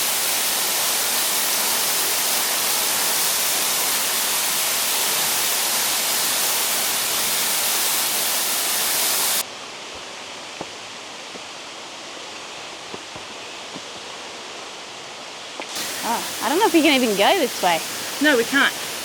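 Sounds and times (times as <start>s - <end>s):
waterfall rushing: 0.0s - 9.4s, 15.6s - 19.0s.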